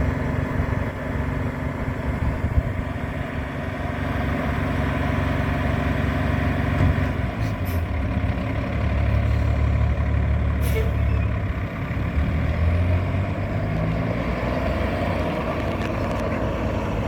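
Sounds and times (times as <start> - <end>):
diesel truck engine idling: 0.0 - 13.6.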